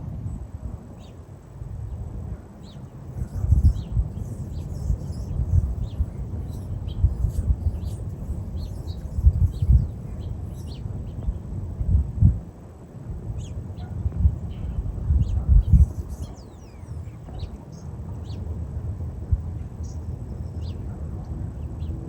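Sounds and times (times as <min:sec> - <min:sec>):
wind buffeting microphone: 0:00.0 - 0:22.0
small birds chirping: 0:00.9 - 0:01.3, 0:01.9 - 0:11.5, 0:13.4 - 0:18.5, 0:19.5 - 0:21.0.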